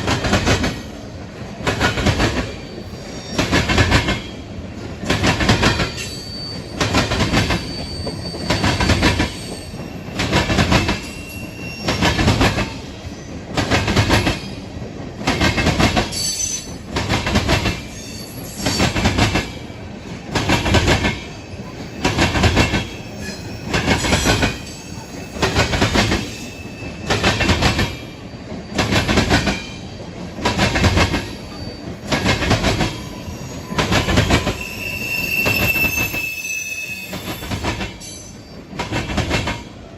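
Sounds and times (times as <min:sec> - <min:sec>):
train wheels clattering over track: 0:00.0 - 0:39.9
high wheel squeal: 0:05.9 - 0:10.2, 0:11.0 - 0:12.3, 0:17.9 - 0:18.9, 0:22.7 - 0:27.3, 0:31.3 - 0:32.2, 0:32.8 - 0:38.7.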